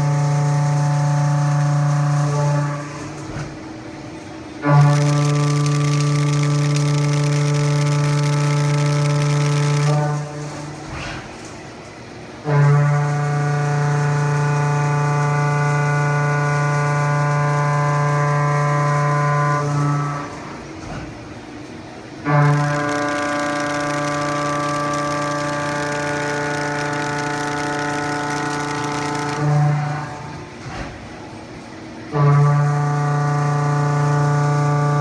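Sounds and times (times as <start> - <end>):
milling cutter cutting steel: 4.8 - 10.3, 22.3 - 30.3.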